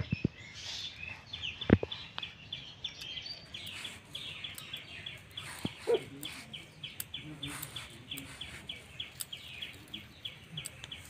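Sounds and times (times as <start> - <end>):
small bird chirping: 0.0 - 11.0.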